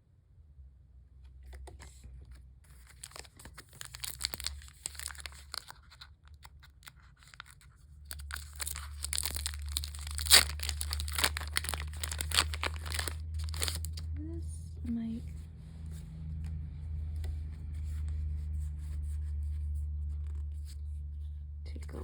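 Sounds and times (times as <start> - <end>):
foil packs tearing and crinkling: 2.8 - 6.1, 6.8 - 14.0.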